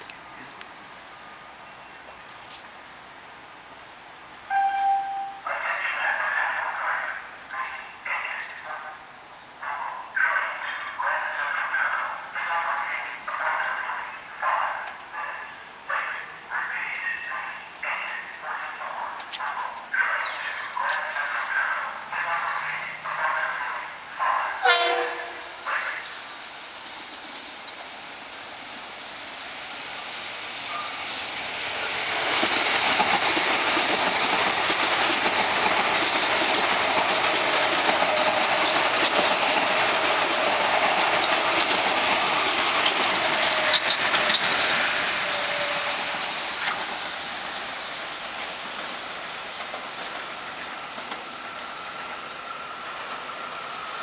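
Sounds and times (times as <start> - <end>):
train rail and wheel noise: 0.0 - 54.0
brief high-pitched sound: 4.5 - 5.5.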